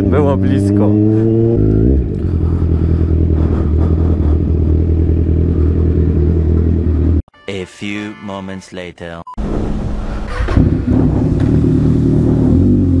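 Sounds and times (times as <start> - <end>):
motorcycle engine running: 0.0 - 7.2, 10.4 - 13.0.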